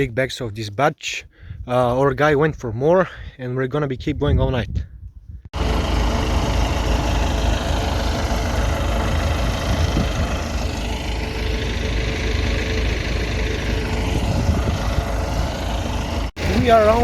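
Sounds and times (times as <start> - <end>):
tractor engine running: 5.6 - 17.0.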